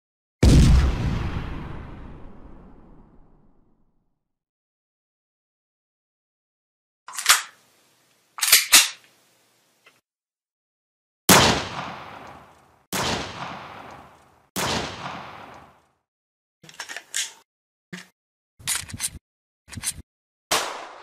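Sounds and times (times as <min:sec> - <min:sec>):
gun handling clicks: 0:07.1 - 0:07.6, 0:08.4 - 0:09.2, 0:16.7 - 0:17.4, 0:18.6 - 0:20.0
gunshots: 0:11.3 - 0:15.8, 0:20.5 - 0:21.0.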